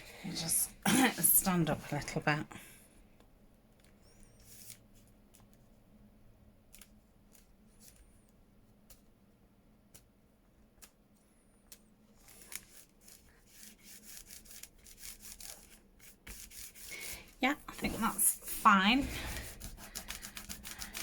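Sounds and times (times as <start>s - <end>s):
paper and fabric rubbing: 12.2s - 21.0s.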